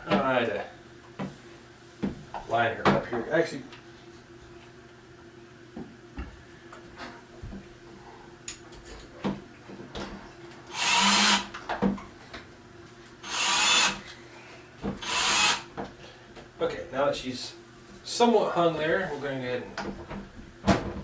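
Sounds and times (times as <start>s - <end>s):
cordless drill driving a screw: 10.7s - 11.5s, 13.2s - 14.0s, 15.0s - 15.7s.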